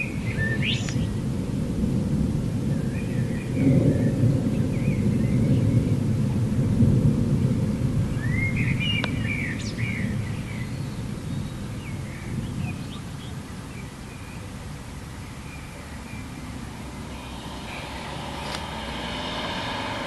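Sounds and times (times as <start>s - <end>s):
thunder rumbling: 0.0s - 8.8s, 14.6s - 20.0s
birds chirping: 8.2s - 20.0s.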